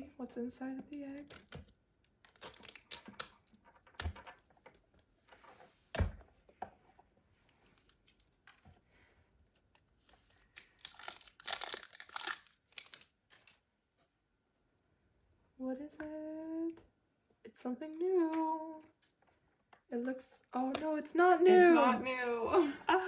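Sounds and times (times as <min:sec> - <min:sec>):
plastic wrapping crinkling and tearing: 0:01.1 - 0:04.2, 0:10.0 - 0:13.6.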